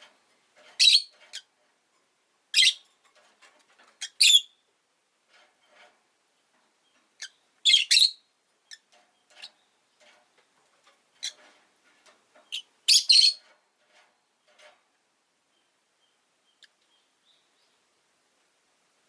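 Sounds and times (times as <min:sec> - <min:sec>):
lovebirds chirping shrilly: 0:04.0 - 0:04.5, 0:07.2 - 0:08.9, 0:12.5 - 0:13.4.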